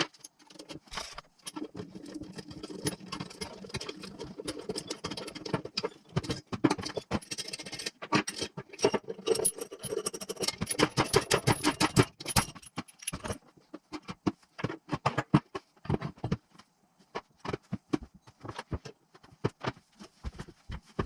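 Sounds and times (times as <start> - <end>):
metal tools clinking: 6.2 - 13.4.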